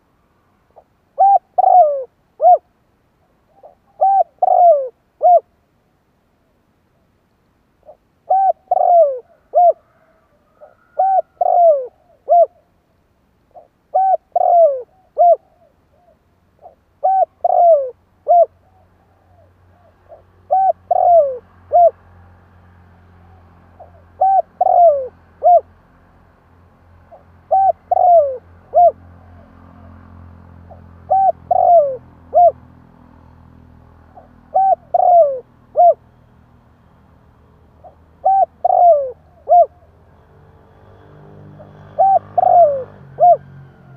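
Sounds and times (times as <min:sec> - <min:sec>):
dove cooing: 0:00.7 - 0:02.7, 0:03.5 - 0:05.5, 0:07.8 - 0:12.6, 0:13.5 - 0:22.0, 0:23.7 - 0:25.7, 0:27.1 - 0:32.7, 0:34.1 - 0:36.1, 0:37.7 - 0:39.9, 0:41.1 - 0:43.9.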